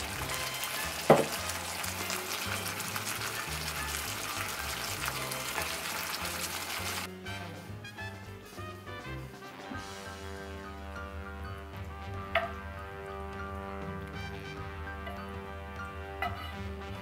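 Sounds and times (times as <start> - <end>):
meat sizzling in a frying pan: 0.0 - 7.1
background music: 0.0 - 17.0
sharp knock: 1.1 - 1.4.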